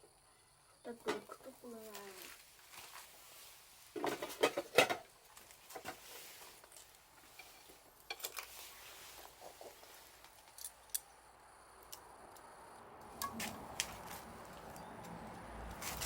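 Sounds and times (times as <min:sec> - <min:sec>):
dishes and utensils clattering: 0:04.0 - 0:05.1.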